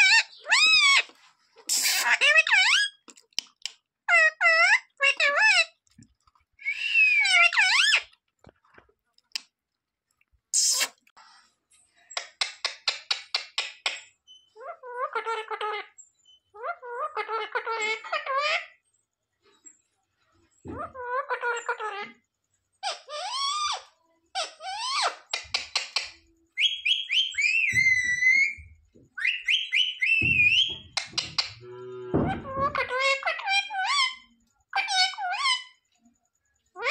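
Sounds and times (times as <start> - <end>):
parrot squawking and chirping: 0.0 - 3.1, 4.1 - 5.8, 6.6 - 8.2, 10.6 - 11.0, 12.2 - 18.8, 20.7 - 22.2, 22.8 - 35.8
parrot clicks: 12.2 - 14.1.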